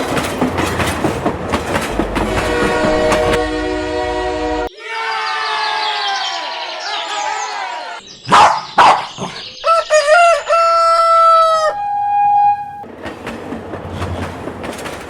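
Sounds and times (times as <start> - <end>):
rooster crowing: 9.6 - 12.8.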